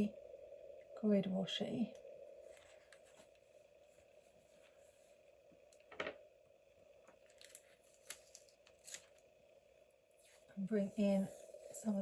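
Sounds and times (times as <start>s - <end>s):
faint steady hum: 0.0s - 12.0s
paper and tape crinkling: 7.2s - 9.2s.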